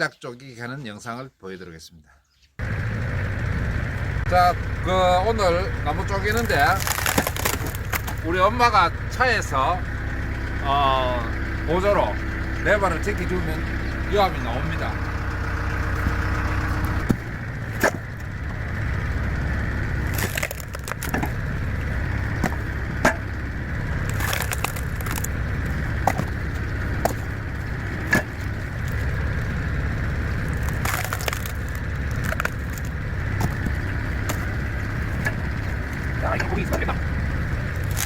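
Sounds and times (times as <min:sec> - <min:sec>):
tractor engine running: 0:02.6 - 0:38.0
wood cracking and splintering: 0:05.8 - 0:08.5, 0:13.7 - 0:38.0.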